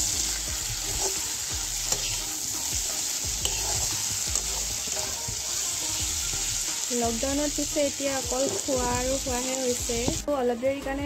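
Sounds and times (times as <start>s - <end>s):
metal spatula scraping a wok: 0.0s - 6.7s, 8.2s - 8.9s
meat sizzling in oil: 0.0s - 10.3s.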